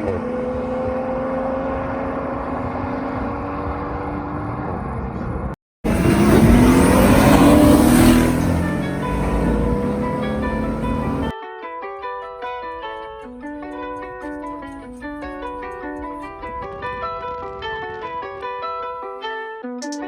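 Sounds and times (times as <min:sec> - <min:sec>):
car accelerating hard: 0:00.0 - 0:11.3
sports car engine running: 0:00.2 - 0:11.3.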